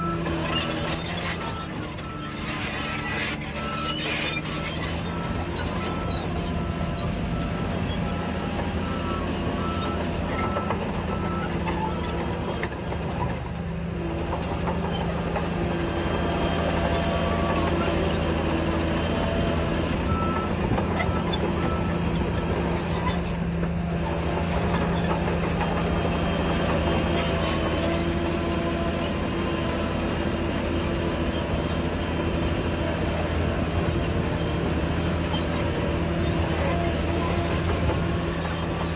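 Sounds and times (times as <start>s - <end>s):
reversing alarm beeping: 0.0s - 12.9s, 19.0s - 23.0s
heavy diesel engine running: 0.0s - 38.9s.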